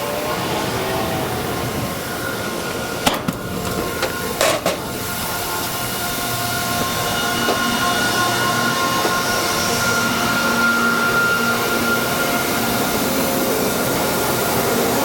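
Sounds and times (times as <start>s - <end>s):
constant machine whine: 0.0s - 15.0s
harvest machinery engine: 0.0s - 15.0s.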